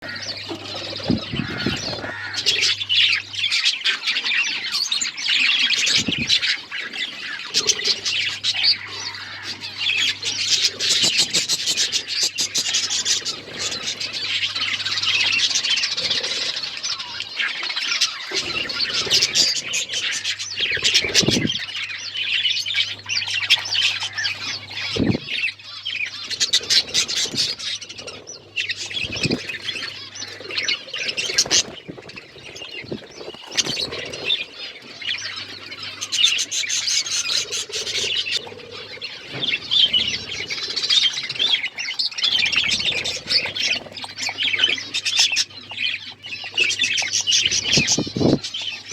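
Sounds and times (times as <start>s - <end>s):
budgies chirping and chattering: 0.0s - 48.9s.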